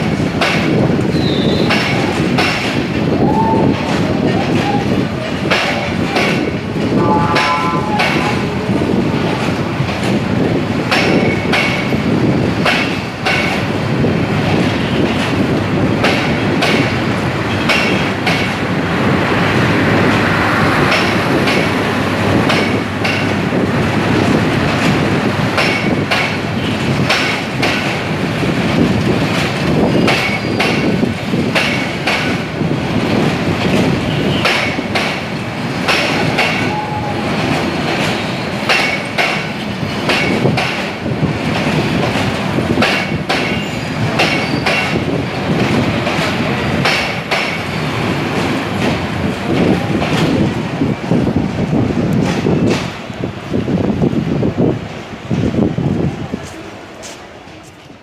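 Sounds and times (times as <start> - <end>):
train wheels clattering over joints: 0.0 - 18.8, 20.8 - 54.0
train rumble: 0.0 - 58.0.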